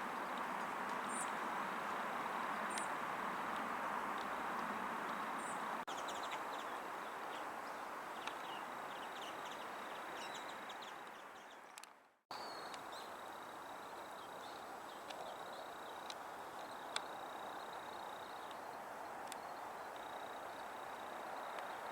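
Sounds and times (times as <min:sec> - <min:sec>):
distant city traffic hum: 0:00.0 - 0:07.4.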